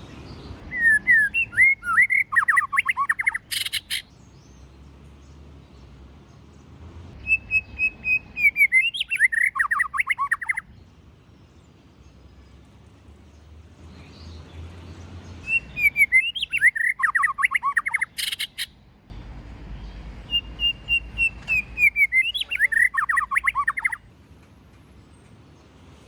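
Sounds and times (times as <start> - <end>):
bird singing whistled phrases: 0.7 - 4.0, 7.2 - 10.7, 15.4 - 18.7, 20.3 - 24.0.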